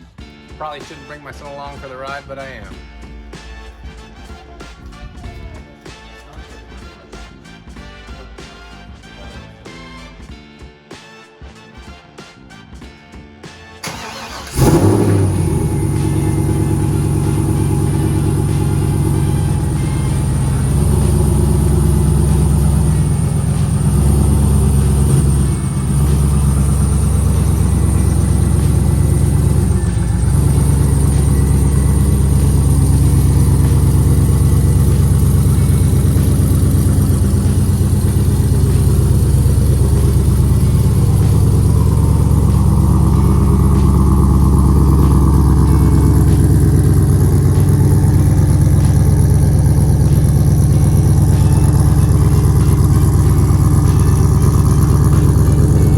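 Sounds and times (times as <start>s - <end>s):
car engine running: 13.8s - 55.9s.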